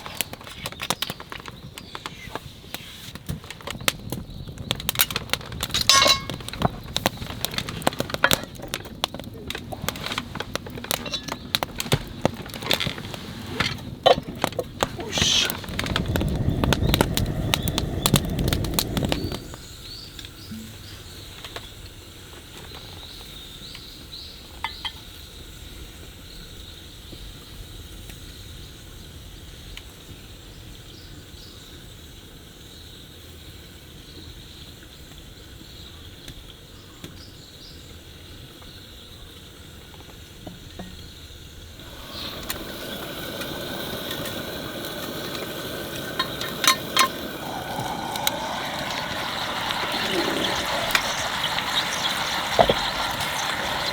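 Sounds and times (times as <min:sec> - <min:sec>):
small birds chirping: 0:00.0 - 0:12.5, 0:13.8 - 0:32.0, 0:32.6 - 0:53.9
loud even hiss: 0:14.8 - 0:21.4, 0:41.6 - 0:53.9.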